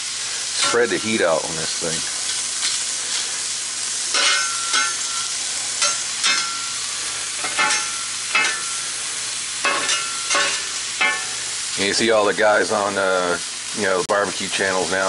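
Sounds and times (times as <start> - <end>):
food sizzling on a griddle: 0.0 - 15.0
metal spatula scraping iron: 0.6 - 1.2, 4.1 - 6.8, 7.4 - 8.9, 9.6 - 11.4.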